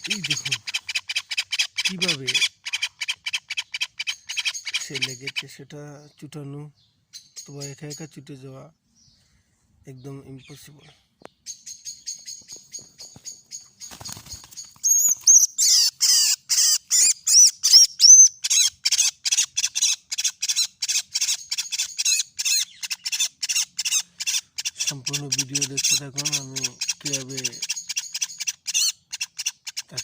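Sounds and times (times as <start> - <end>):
bird distress calls: 0.0 - 5.6, 11.4 - 30.0.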